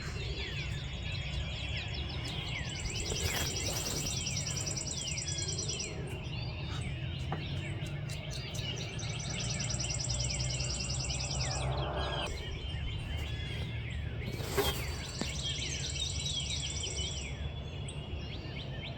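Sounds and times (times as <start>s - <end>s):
songbirds singing: 0.0s - 18.9s
steady low rumble: 8.4s - 14.2s.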